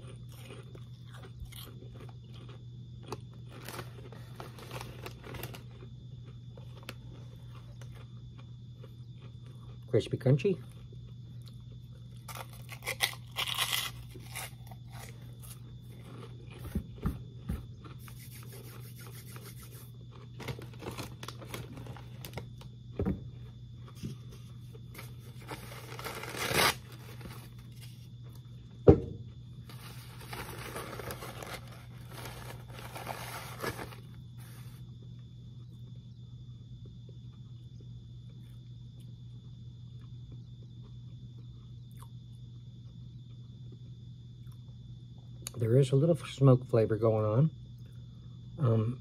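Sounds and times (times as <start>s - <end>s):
snack bag crinkling: 0.0s - 8.5s, 11.6s - 16.6s, 17.8s - 22.8s, 24.7s - 28.0s, 29.6s - 34.8s
crunchy snack being chewed: 0.0s - 35.8s, 36.8s - 44.8s
steady low hum: 0.0s - 49.0s.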